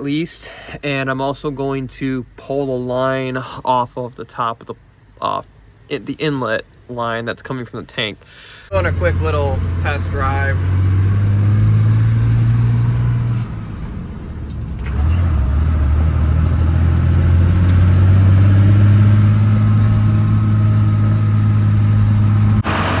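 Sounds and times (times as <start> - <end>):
diesel truck engine driving: 8.7 - 23.0.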